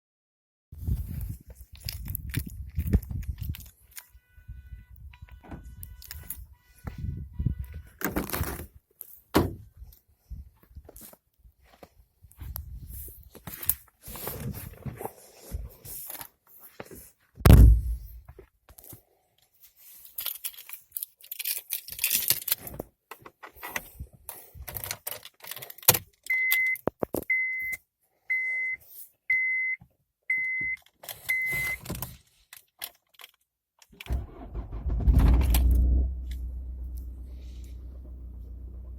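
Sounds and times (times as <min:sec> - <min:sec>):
loud thump: 0:17.4 - 0:18.2
short electronic beeps: 0:26.3 - 0:31.8
diesel engine starting and idling: 0:34.0 - 0:38.9.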